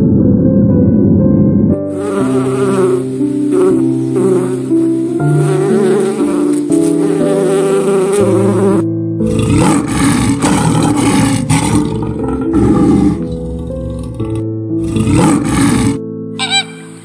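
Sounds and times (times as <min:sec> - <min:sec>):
soft instrumental music: 0:00.4 - 0:17.0
bee buzzing: 0:01.9 - 0:17.0
lion growling: 0:09.2 - 0:16.0.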